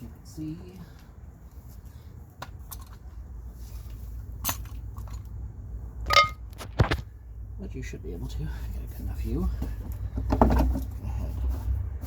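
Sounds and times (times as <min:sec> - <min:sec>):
metal tools clicking and knocking: 0:06.1 - 0:06.4.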